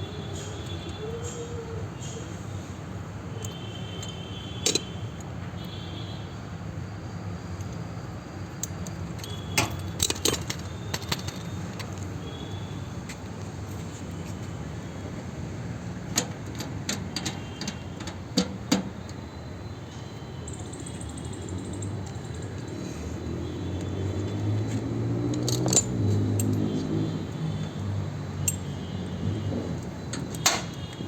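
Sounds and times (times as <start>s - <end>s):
metal hand tools clinking: 9.1s - 11.9s, 25.3s - 26.9s.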